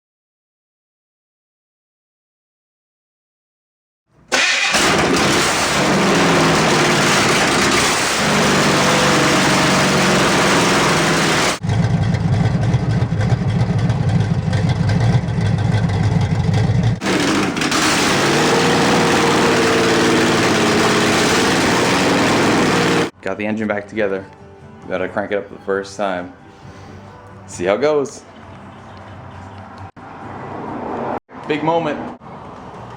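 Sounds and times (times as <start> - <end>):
car engine running and revving: 4.7 - 23.1.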